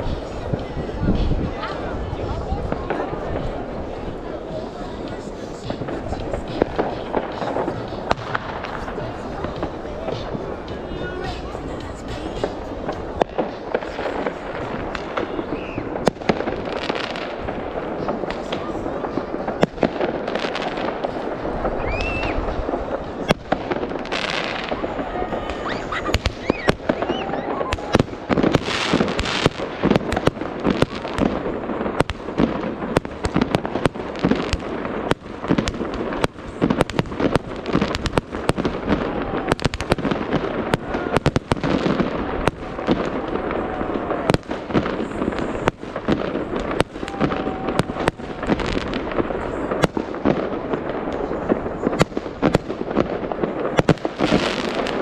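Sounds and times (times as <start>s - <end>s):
fireworks bangs: 0.0s - 55.0s
fireworks crackling: 0.0s - 55.0s
fireworks whistles: 5.4s - 17.1s, 21.1s - 22.7s, 24.1s - 31.3s.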